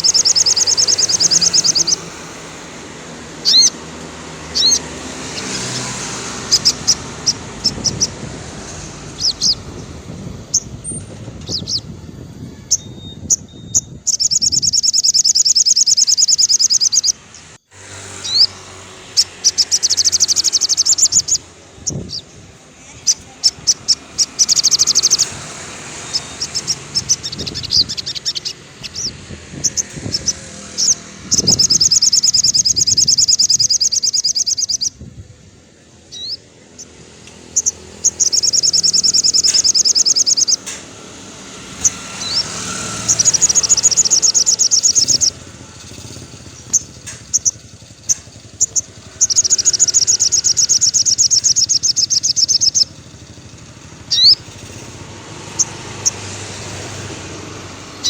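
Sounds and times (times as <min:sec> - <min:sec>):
bird sharp chirps: 0:00.0 - 0:02.8, 0:03.4 - 0:03.8, 0:04.5 - 0:09.9, 0:12.6 - 0:35.0, 0:36.0 - 0:58.0
bird trilling rapidly: 0:00.0 - 0:35.1, 0:36.0 - 0:58.0.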